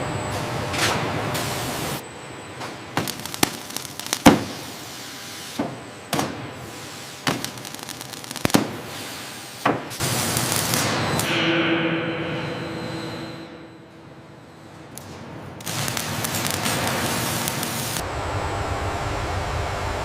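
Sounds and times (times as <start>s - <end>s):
sharp knocks and clanks: 10.8s - 15.3s.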